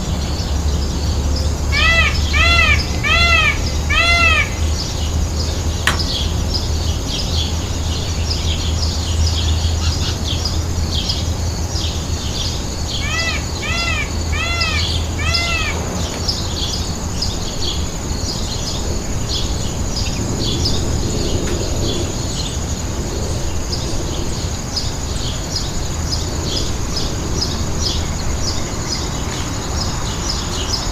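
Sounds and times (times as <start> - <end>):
small birds chirping: 0.0 - 22.6
bird call rising and falling: 12.9 - 16.9.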